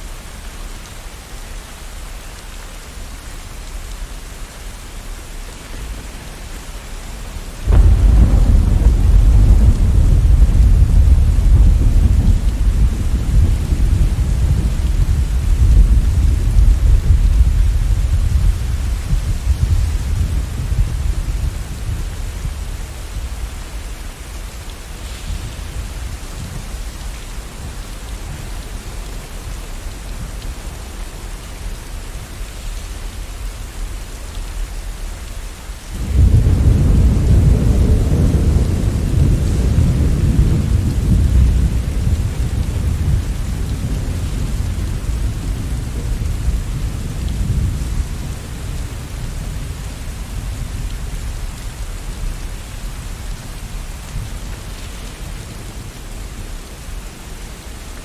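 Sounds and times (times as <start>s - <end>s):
steady rain: 0.0s - 58.0s
thunder rumbling: 7.6s - 30.8s, 36.0s - 51.6s.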